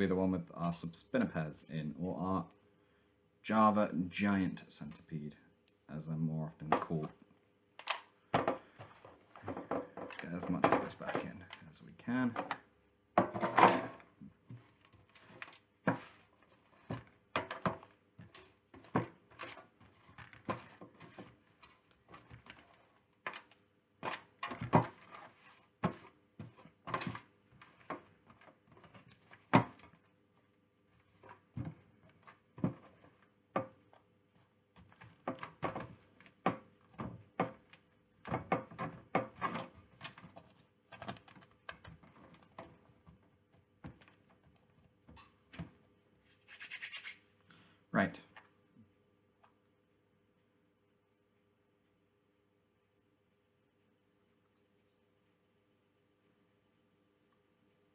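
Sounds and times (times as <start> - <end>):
plastic tubs knocking and rustling: 6.6 - 7.2, 7.8 - 45.9.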